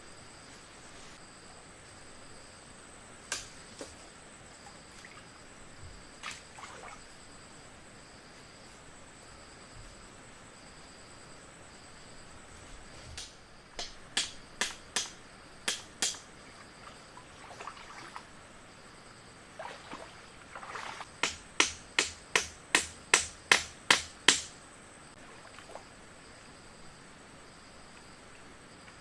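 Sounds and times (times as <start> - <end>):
sharp knocks on wood: 13.2 - 16.2, 21.2 - 24.5.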